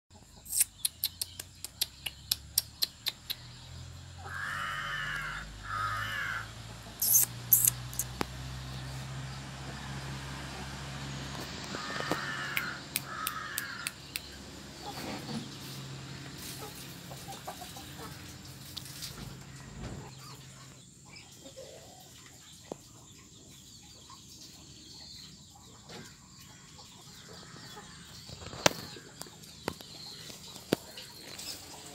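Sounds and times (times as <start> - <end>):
bird calling: 0.4 - 8.3, 11.6 - 15.2
high-pitched squeaks: 7.0 - 8.2
sharp clicks: 7.0 - 8.4, 11.6 - 14.4.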